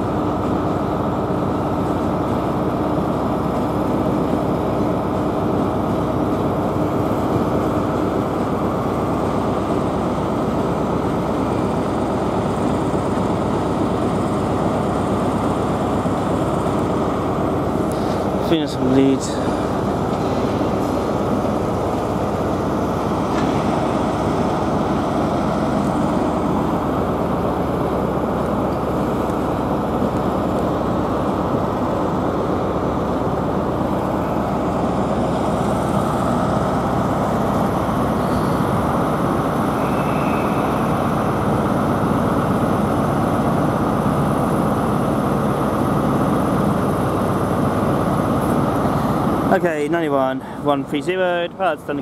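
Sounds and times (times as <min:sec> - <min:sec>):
trains humming at platform: 0:00.0 - 0:52.0.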